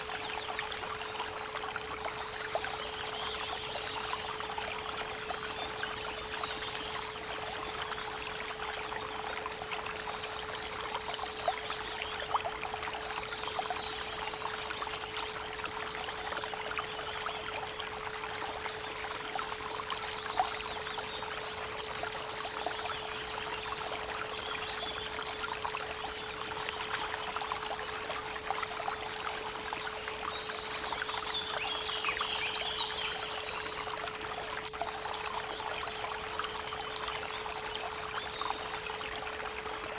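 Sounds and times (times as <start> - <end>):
creek water trickling: 0.0 - 39.9.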